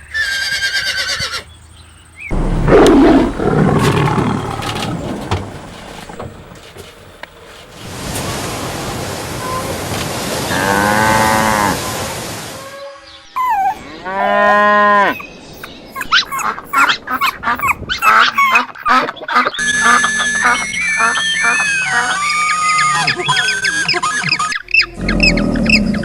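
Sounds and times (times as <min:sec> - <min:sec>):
cattle mooing: 0:02.3 - 0:05.4, 0:10.5 - 0:11.8.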